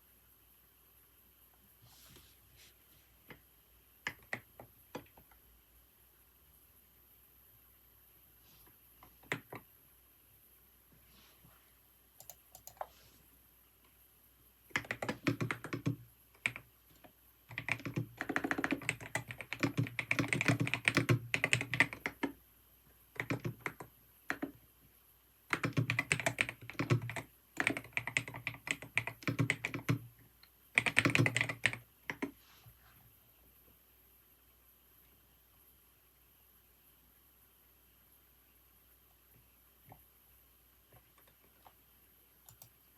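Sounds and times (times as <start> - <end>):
keyboard typing clicks: 12.2 - 12.9, 14.7 - 22.4, 25.5 - 30.1, 42.4 - 42.8.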